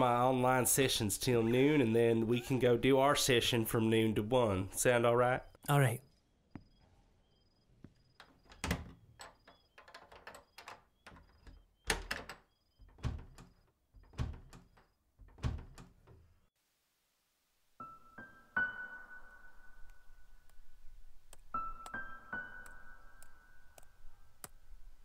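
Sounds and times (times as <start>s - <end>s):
piano music: 17.8s - 24.2s.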